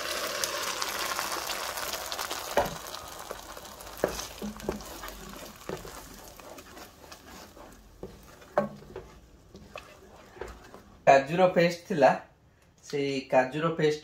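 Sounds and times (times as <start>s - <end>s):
paste sizzling in butter: 0.0s - 10.8s.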